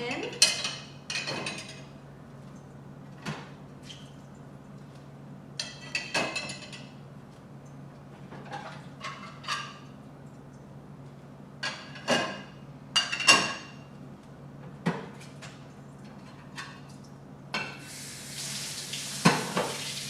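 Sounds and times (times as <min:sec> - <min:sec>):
dishes clinking against rack: 0:00.3 - 0:01.9, 0:05.6 - 0:06.9, 0:11.6 - 0:13.8.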